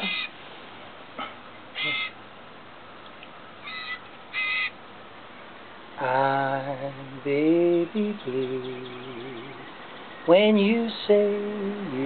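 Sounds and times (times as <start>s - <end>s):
young bird short calls: 0.0s - 0.3s, 1.2s - 2.2s, 3.6s - 4.8s.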